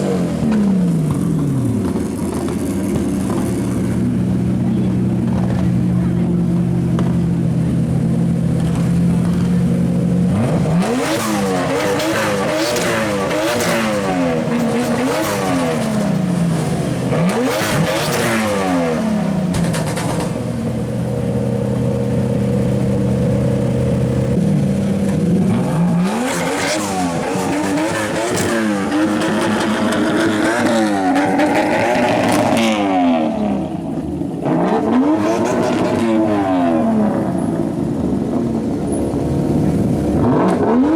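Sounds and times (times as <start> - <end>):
car engine revving: 0.0 - 40.9
exhaust pops and bangs: 0.4 - 7.8, 8.4 - 11.2, 19.4 - 23.0.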